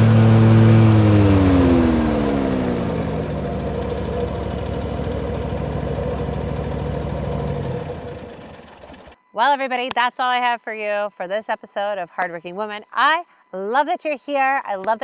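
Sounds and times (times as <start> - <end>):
engine winding down: 0.0 - 9.2.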